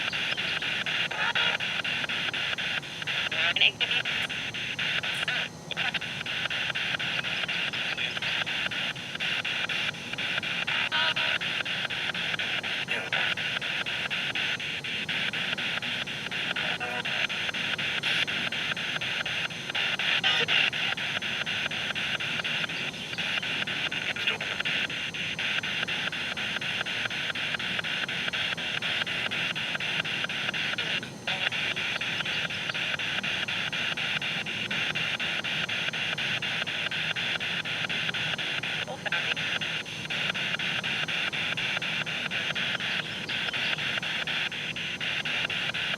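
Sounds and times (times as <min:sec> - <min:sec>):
radio static hiss: 0:00.0 - 0:45.9
rapid radio sweep chatter: 0:00.0 - 0:45.9.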